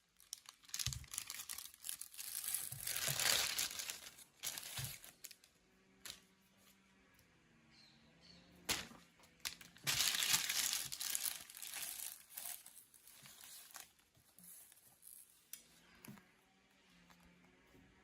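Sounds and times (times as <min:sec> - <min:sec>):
plastic packaging crinkling: 0:00.0 - 0:05.5, 0:08.7 - 0:15.5.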